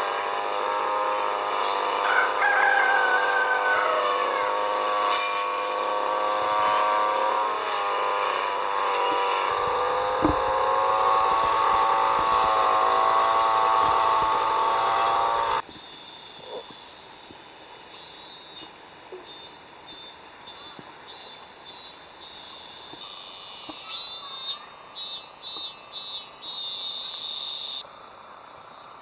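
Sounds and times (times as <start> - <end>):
small engine running: 0.0 - 15.6
thud: 9.7 - 12.4.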